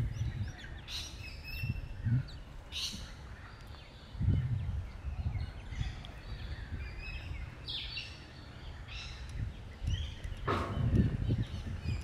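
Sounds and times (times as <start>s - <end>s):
birds chirping: 0.0s - 12.0s
low uneven rumble: 1.7s - 12.0s
soft thuds: 10.4s - 11.3s.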